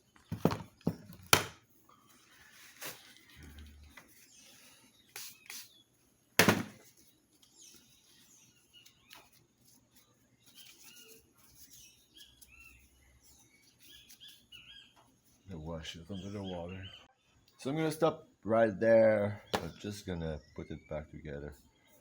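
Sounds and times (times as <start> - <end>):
small birds chirping: 0.0 - 22.0
loud knock of vacuum parts: 6.4 - 6.8.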